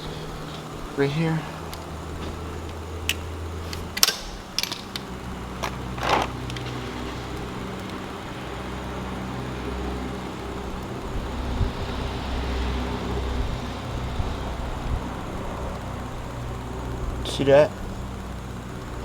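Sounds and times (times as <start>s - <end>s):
steady low hum: 0.0s - 19.0s
allen key clicking on bolt: 3.0s - 6.6s.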